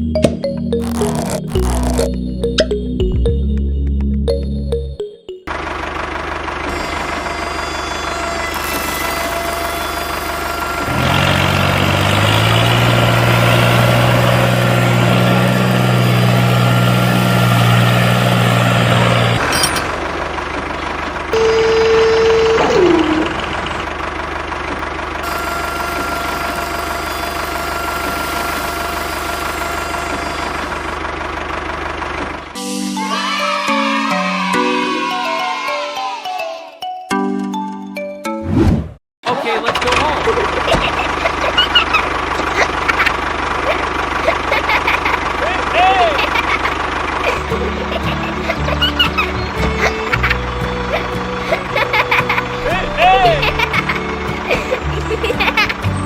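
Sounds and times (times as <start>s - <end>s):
tractor engine running: 5.5s - 32.6s, 39.3s - 56.0s.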